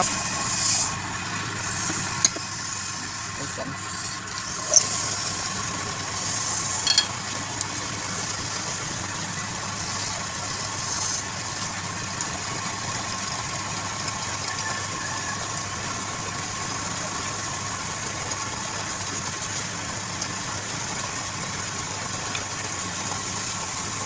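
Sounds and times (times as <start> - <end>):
lathe motor hum: 0.0 - 7.0.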